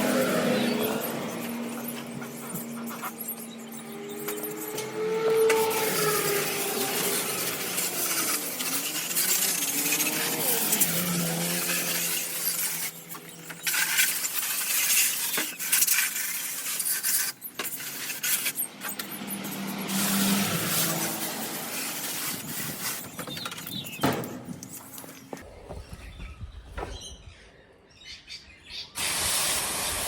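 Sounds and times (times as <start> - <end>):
hose water spraying hard: 5.6 - 16.0, 19.8 - 23.4, 29.0 - 30.0.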